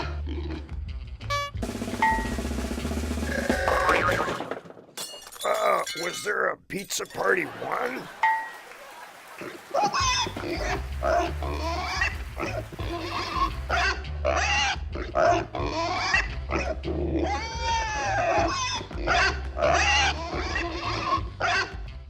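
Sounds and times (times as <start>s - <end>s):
pig grunting and squealing voice: 0.0s - 0.9s, 3.2s - 4.5s, 9.4s - 21.8s.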